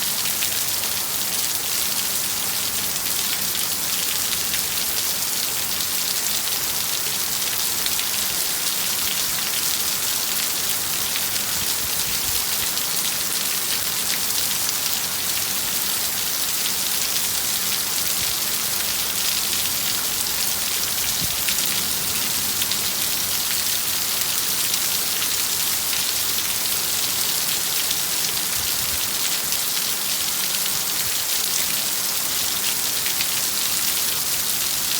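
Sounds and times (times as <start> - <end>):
heavy rain: 0.0 - 34.9.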